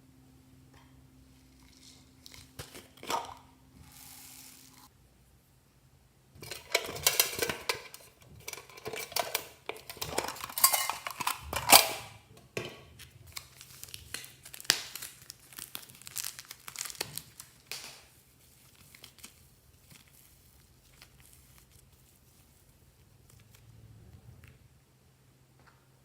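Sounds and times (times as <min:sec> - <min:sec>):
slime crackling and popping: 0:13.3 - 0:23.6.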